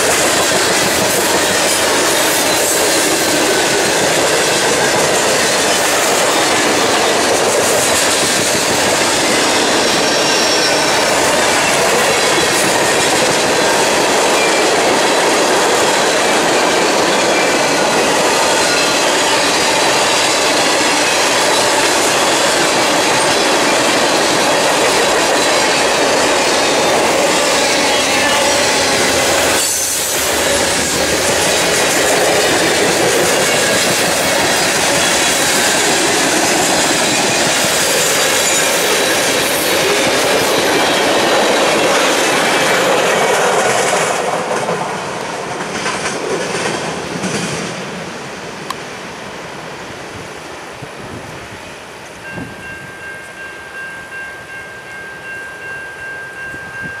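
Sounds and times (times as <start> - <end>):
freight train wheels rushing: 0.0 - 57.0
high ringing tone: 9.2 - 12.2, 24.6 - 31.6, 52.1 - 57.0.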